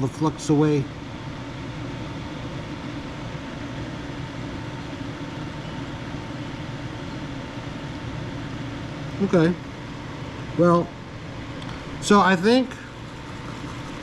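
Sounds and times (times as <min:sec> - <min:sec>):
fan whirring: 0:00.0 - 0:14.0
thin steady whine: 0:00.0 - 0:14.0.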